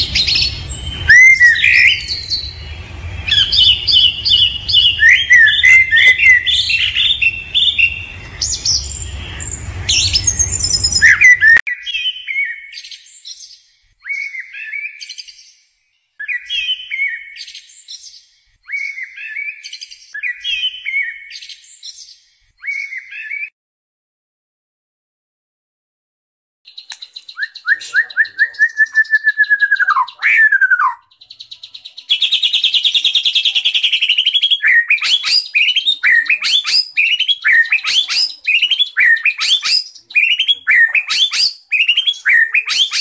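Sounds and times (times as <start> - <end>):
low background rumble: 0.0 - 11.6
birds chirping and singing: 0.0 - 15.6, 16.2 - 23.4, 26.7 - 43.0.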